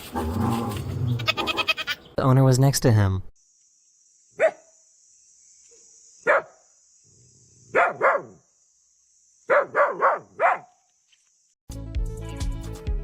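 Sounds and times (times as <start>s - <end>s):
dog barking: 4.4s - 4.7s, 6.2s - 6.6s, 7.7s - 8.4s, 9.5s - 10.7s
music: 11.7s - 13.0s.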